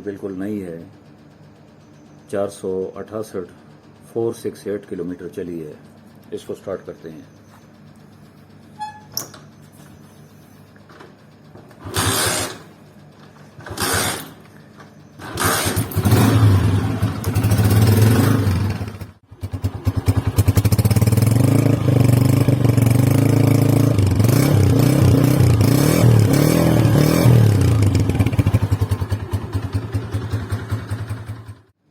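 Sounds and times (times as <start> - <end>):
motorcycle kick-start strokes: 8.7 - 31.7
motorcycle engine revving: 11.7 - 12.8, 13.6 - 14.4, 15.2 - 31.7.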